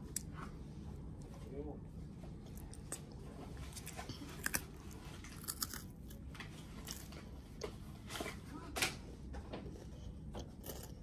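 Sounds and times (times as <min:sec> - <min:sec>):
child chewing crunchy biscuit: 0:02.3 - 0:08.0, 0:09.6 - 0:11.0.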